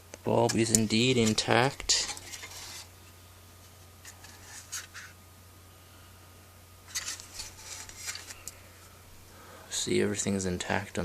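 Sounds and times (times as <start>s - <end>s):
low steady hum: 0.0s - 11.0s
handling scrapes and rubs: 1.1s - 2.9s, 3.6s - 5.2s, 6.9s - 8.5s.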